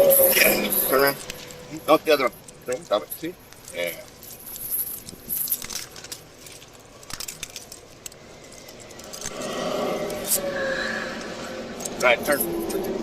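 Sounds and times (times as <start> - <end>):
handcuffs clicking and jingling: 0.0 - 9.4
steady hum: 0.0 - 13.0.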